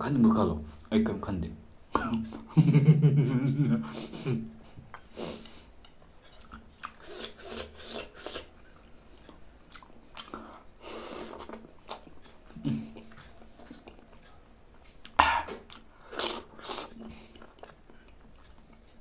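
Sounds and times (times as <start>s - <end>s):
person chewing soft fruit: 4.6s - 19.0s.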